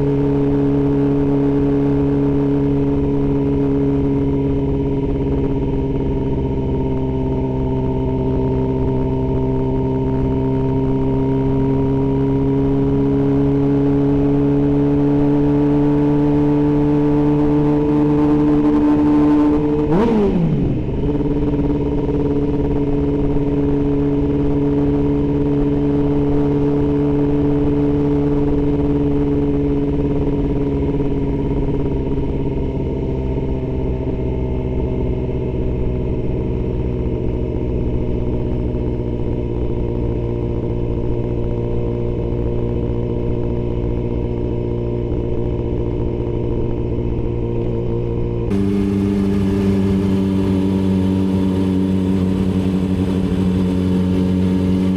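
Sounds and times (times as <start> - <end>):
motorcycle engine cruising: 0.0 - 54.9.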